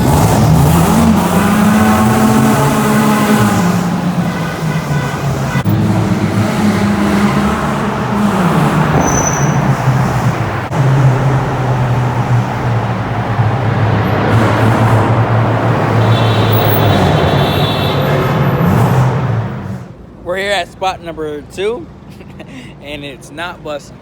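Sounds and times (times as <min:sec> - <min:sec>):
car engine: 0:00.0 - 0:20.2
road noise: 0:00.0 - 0:24.0.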